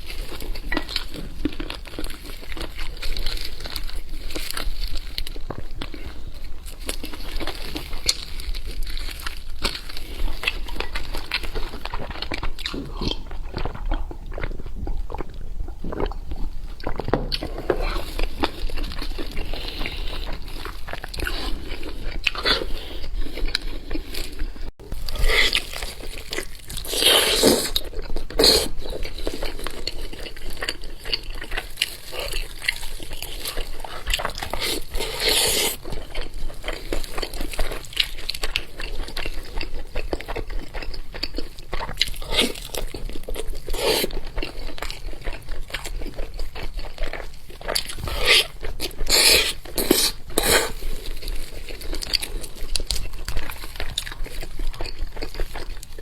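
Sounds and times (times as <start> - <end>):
person chewing meat: 0.0 - 56.0
wet mouth noises: 31.2 - 36.6, 37.3 - 56.0.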